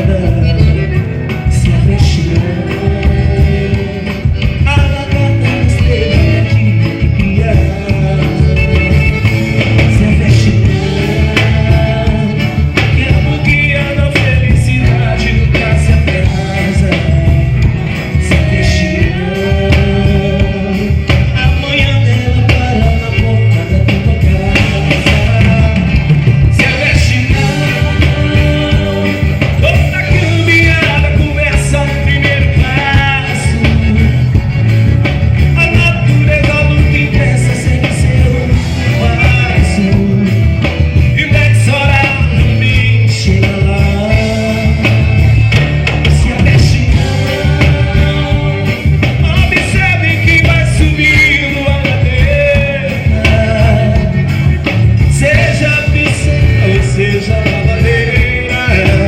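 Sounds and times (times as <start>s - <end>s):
folk band music with steady beat: 0.0s - 59.0s.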